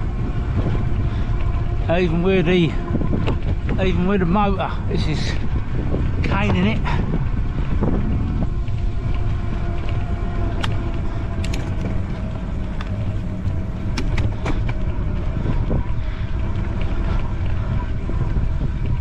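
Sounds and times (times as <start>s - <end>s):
electric bike motor whining: 0.0s - 19.0s
wind buffeting microphone: 0.0s - 19.0s
sharp clicks from bike: 9.8s - 13.1s.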